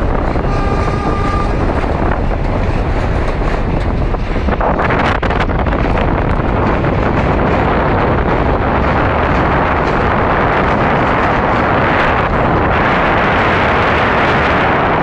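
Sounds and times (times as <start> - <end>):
train running over steel bridge: 0.0 - 15.0
wind buffeting microphone: 0.0 - 15.0.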